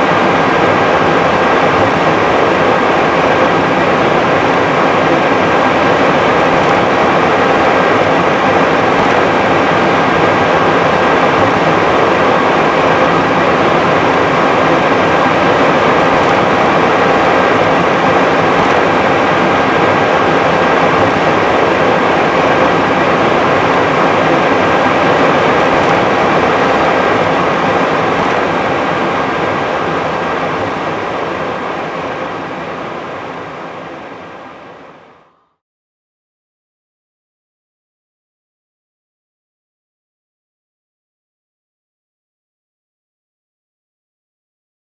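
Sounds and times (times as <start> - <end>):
cockpit air and machinery rush: 0.0 - 34.8
faint steady whine: 0.0 - 35.6.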